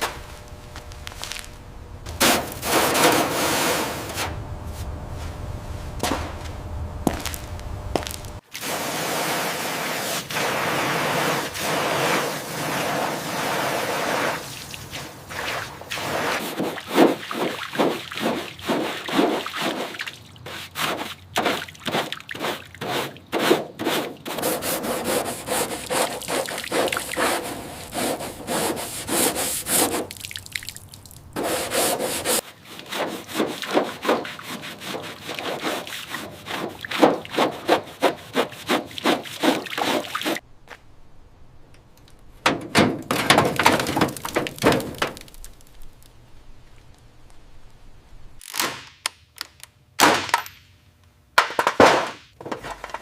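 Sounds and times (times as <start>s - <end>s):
rapid rubbing strokes: 22.4s - 30.1s, 31.4s - 40.4s.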